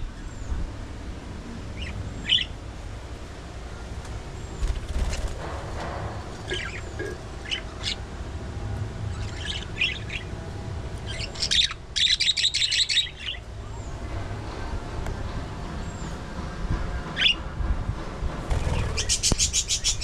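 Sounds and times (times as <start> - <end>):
budgerigars chirping: 11.1 - 13.4, 18.8 - 20.0.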